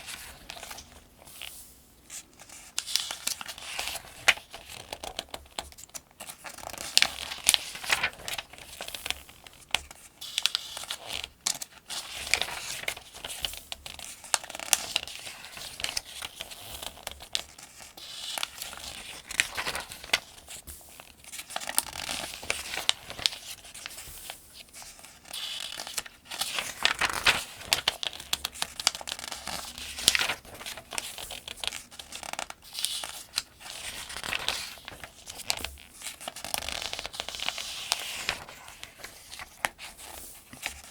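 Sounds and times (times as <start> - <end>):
paper pages turning: 0.0 - 40.9.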